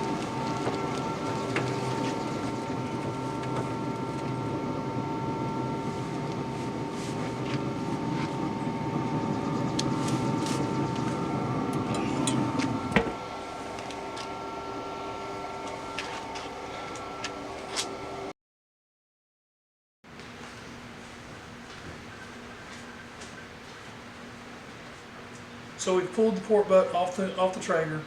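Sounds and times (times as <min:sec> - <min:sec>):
steady machine hum: 0:00.0 - 0:18.3.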